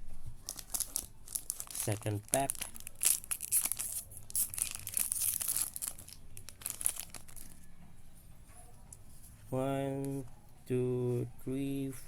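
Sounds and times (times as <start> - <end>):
foil wrapper crackling: 0.4 - 7.6.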